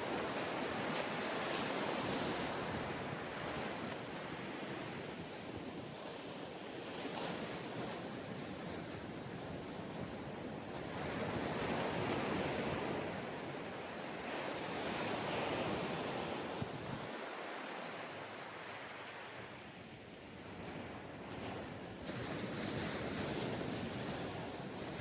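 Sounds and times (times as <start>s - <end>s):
wind on microphone: 0.0s - 17.4s
sea waves breaking on beach: 0.0s - 19.7s.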